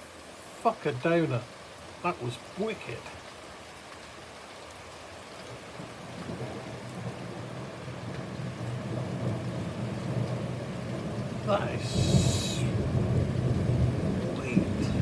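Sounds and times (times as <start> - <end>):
heavy rain falling: 0.0 - 15.0
thunder rumbling: 6.3 - 15.0.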